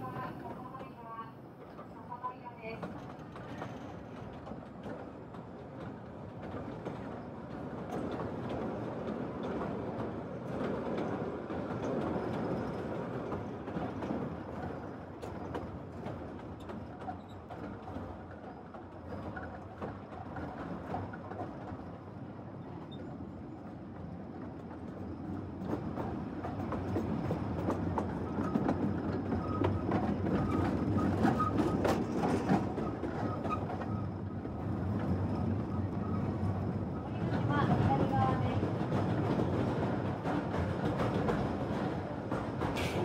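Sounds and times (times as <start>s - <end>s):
train rumbling on rails: 0.0s - 43.0s.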